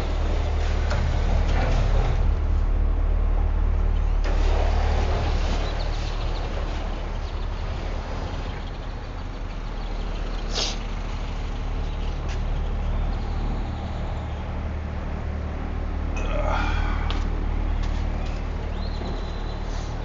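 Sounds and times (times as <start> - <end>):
road noise: 0.0 - 20.0
truck engine droning: 0.0 - 20.0
brief hiss: 10.5 - 10.8.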